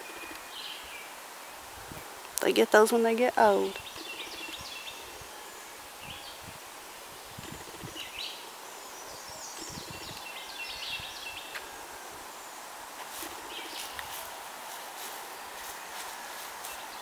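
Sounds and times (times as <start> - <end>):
birds chirping: 0.0 - 1.6, 2.4 - 6.5, 7.2 - 17.0
steady background hiss: 0.0 - 17.0.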